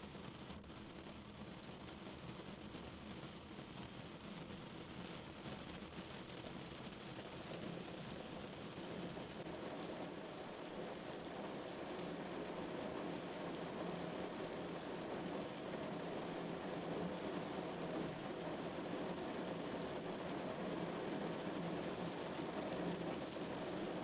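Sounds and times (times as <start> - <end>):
rain falling on a car: 0.0 - 24.0.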